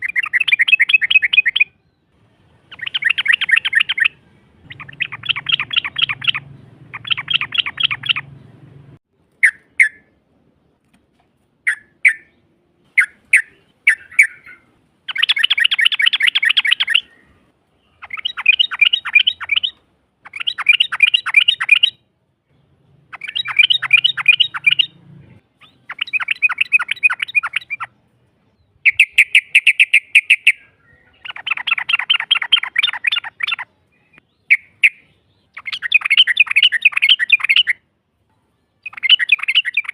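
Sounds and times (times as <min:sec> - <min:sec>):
bird bubbling trills: 0:02.7 - 0:08.3.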